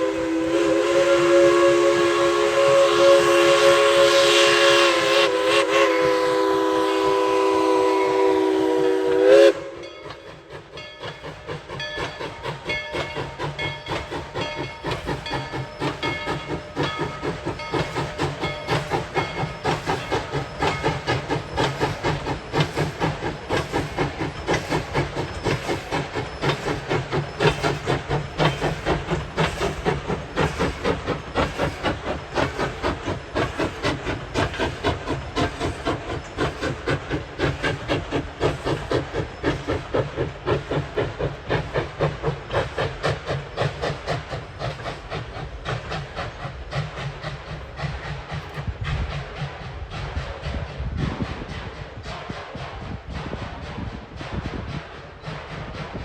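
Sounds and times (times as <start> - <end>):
steam locomotive chime whistle: 0.0 - 29.8
steam hissing: 0.0 - 56.0
steam locomotive chuffing: 0.0 - 56.0.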